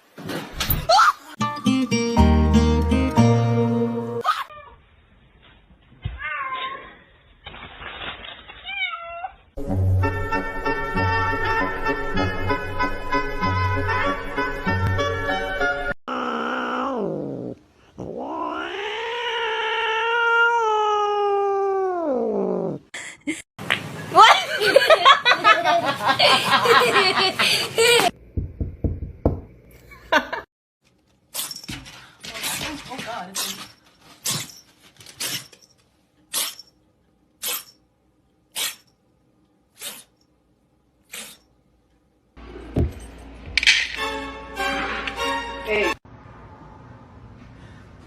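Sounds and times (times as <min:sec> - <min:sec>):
music: 0:01.4 - 0:04.2, 0:09.6 - 0:16.0, 0:43.8 - 0:46.0
cat yowling: 0:16.1 - 0:22.8.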